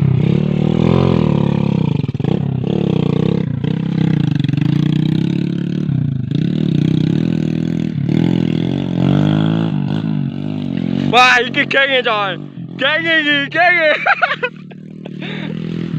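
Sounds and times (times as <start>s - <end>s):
engine revving: 0.0s - 15.9s.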